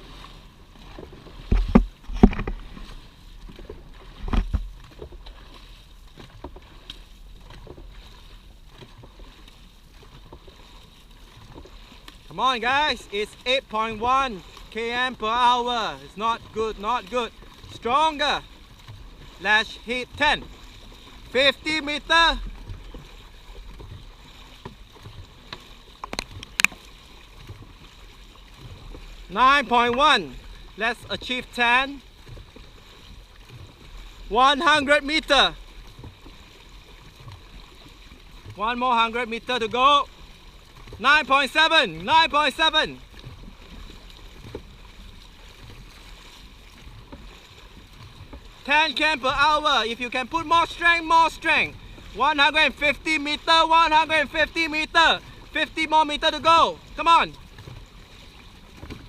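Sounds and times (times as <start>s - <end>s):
paddles splashing water: 0.0s - 59.0s
water wash: 0.0s - 59.0s.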